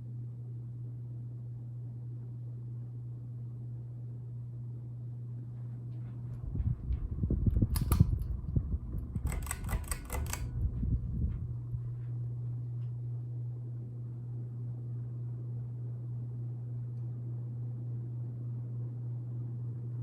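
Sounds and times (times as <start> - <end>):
ceiling fan humming: 0.0 - 20.0
low bumps: 6.3 - 9.1
sharp clicks: 7.7 - 8.3, 9.2 - 10.6.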